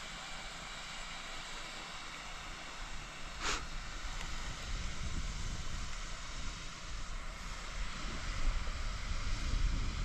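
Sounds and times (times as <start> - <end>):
steady hiss: 0.0 - 10.0
wind buffeting microphone: 3.6 - 10.0.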